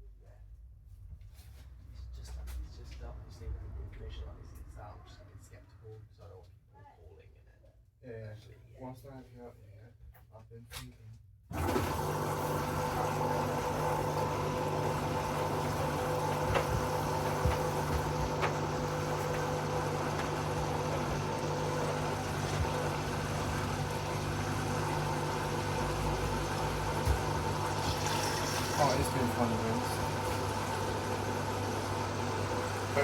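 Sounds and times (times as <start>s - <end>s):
washing machine running: 11.5s - 33.0s.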